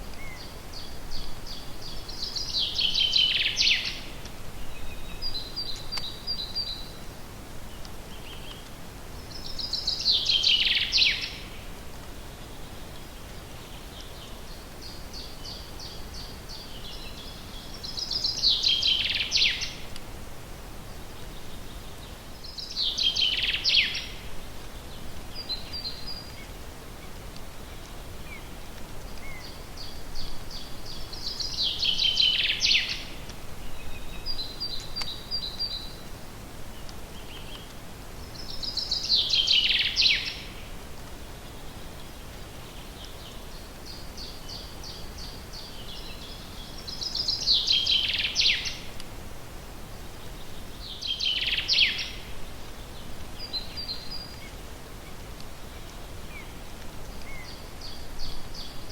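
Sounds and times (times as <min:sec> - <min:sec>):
birds chirping softly: 0:00.0 - 0:58.9
faint steady hiss: 0:00.0 - 0:58.9
songbird singing falling notes: 0:00.1 - 0:06.9, 0:27.7 - 0:36.0.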